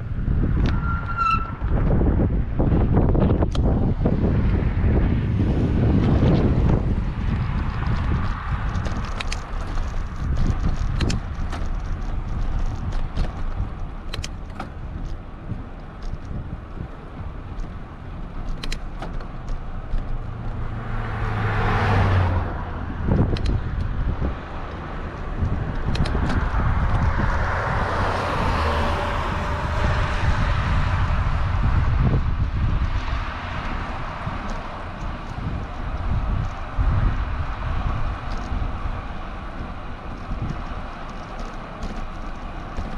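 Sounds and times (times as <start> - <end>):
bicycle and trailer rattling: 0.0 - 21.3, 21.9 - 42.9
car passing: 0.0 - 42.9
wind rumbling on microphone: 0.0 - 42.9
small ticks: 7.3 - 15.2, 38.1 - 38.6, 39.6 - 42.9.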